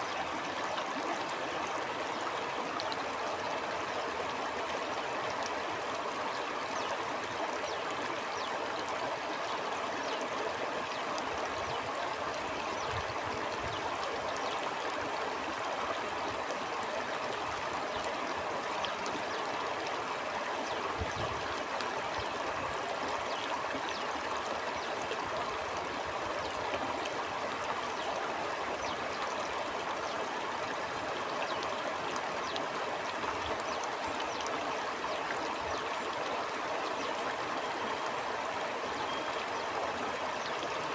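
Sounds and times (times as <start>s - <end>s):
stream flowing over stones: 0.0s - 40.9s.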